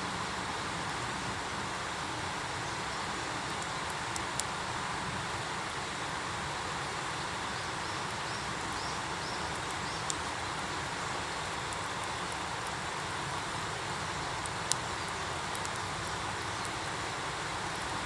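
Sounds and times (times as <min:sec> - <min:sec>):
campfire hissing and popping: 0:00.1 - 0:18.0.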